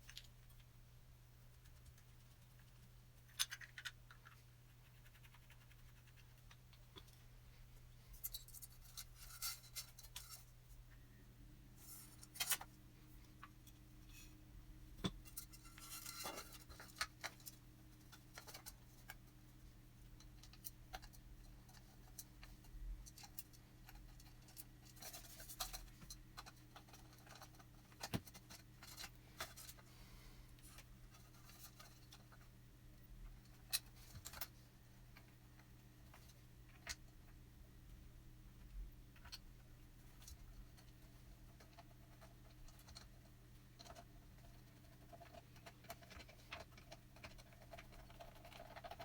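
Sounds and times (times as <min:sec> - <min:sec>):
faint steady hum: 0:00.0 - 0:49.0.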